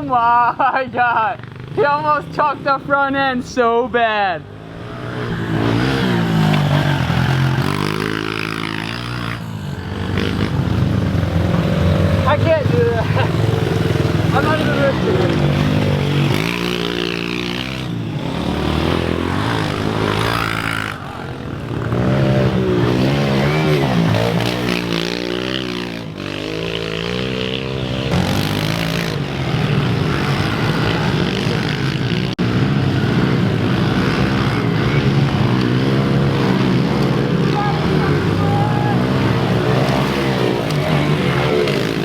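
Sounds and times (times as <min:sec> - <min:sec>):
pit bike engines revving: 0:00.0 - 0:42.0.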